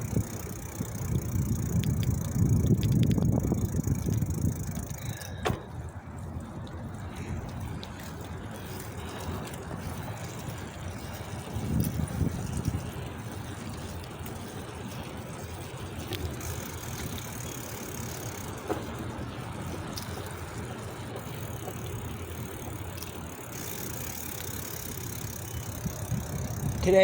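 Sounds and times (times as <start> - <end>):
wind rushing over microphone: 0.0 - 13.3, 25.0 - 27.0
bicycle tyre noise: 0.0 - 27.0.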